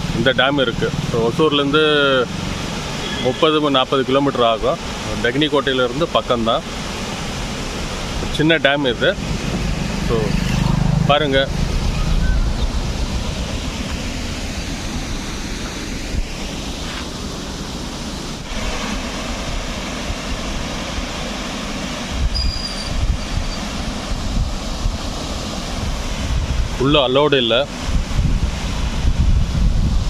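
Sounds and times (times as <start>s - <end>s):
rushing water: 0.0s - 30.0s
wind buffeting microphone: 9.0s - 16.8s, 22.1s - 30.0s.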